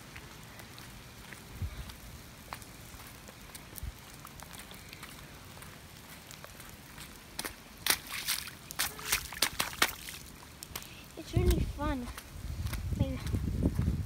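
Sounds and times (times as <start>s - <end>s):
steady rain: 0.0s - 14.0s
sharp wet splashes and taps: 7.3s - 12.2s.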